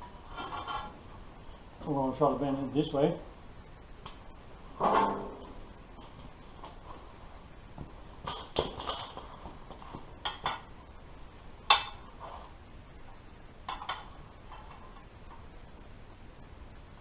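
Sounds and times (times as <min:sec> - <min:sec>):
metallic clinks and knocks: 0:08.2 - 0:10.7.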